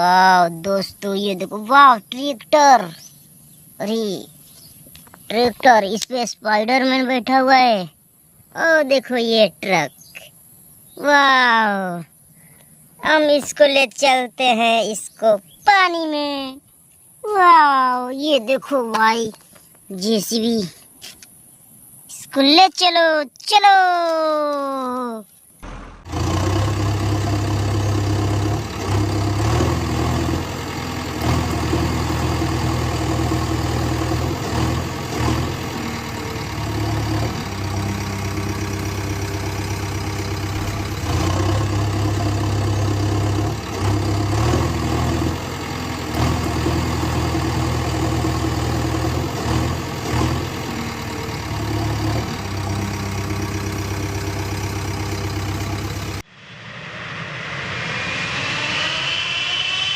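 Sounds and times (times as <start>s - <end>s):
heavy engine idling: 25.6s - 56.2s.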